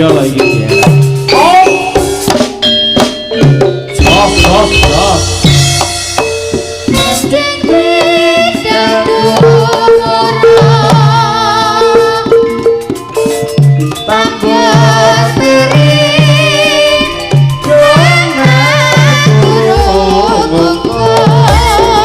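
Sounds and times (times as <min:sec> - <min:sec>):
wavering vibrato lead melody: 0:00.4 - 0:22.0
ringing gong-chime notes: 0:00.5 - 0:07.4.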